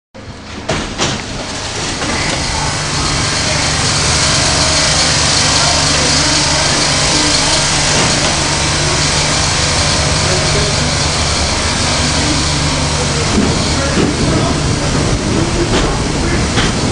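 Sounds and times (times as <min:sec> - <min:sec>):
subway train running on rails: 0:00.2 - 0:16.9
low hum: 0:01.3 - 0:16.9.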